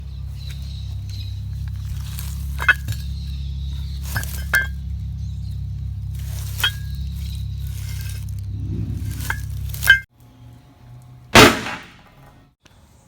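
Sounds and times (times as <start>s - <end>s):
steady low hum: 0.0s - 10.1s
metallic clinks: 4.0s - 5.0s.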